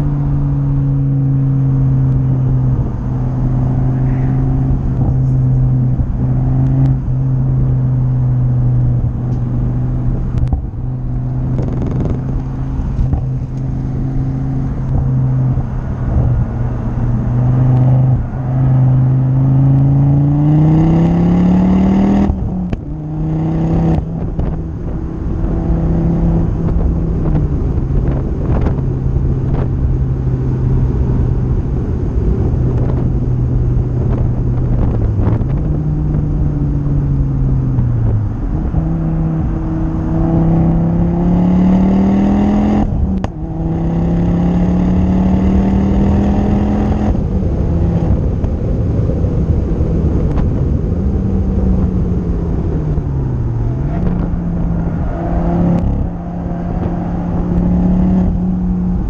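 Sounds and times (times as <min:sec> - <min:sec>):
car engine revving: 0:00.0 - 0:59.0
wind and road noise: 0:00.0 - 0:59.0.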